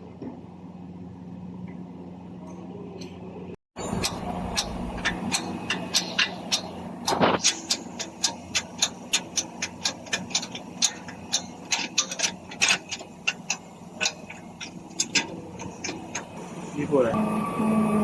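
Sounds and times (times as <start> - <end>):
metal scrape: 3.8 - 17.1.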